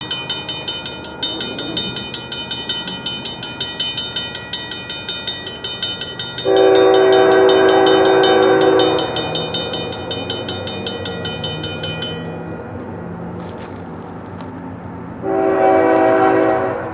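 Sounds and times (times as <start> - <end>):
bell ringing rapidly: 0.0 - 12.5
locomotive air horn blast: 6.5 - 9.0, 15.2 - 16.9.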